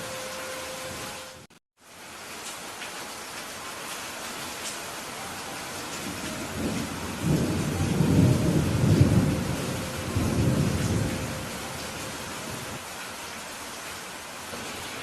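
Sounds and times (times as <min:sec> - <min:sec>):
steady rain hiss: 0:00.0 - 0:15.0
rolling thunder rumble: 0:05.9 - 0:12.8.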